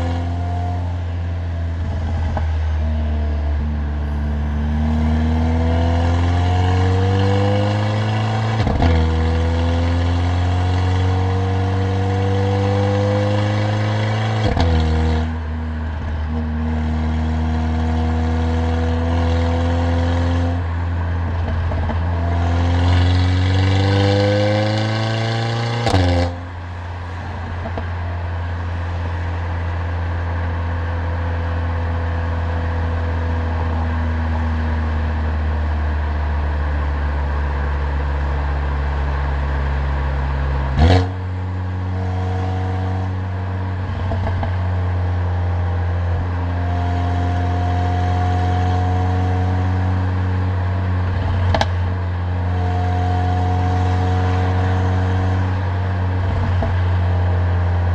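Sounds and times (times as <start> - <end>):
car engine accelerating through gears: 0.0 - 29.8, 30.4 - 57.9
loud exhaust crack: 25.8 - 28.8.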